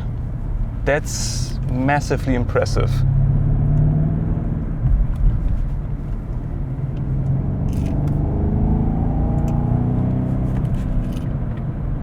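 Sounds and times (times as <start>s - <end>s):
car engine pulling under load: 7.0s - 11.6s.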